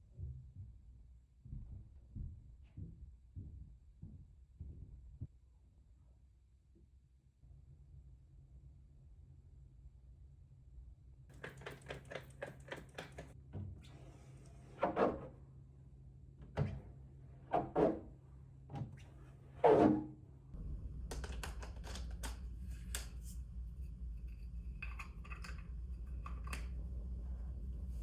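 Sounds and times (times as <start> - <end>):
knocks of objects being handled: 11.3 - 13.4.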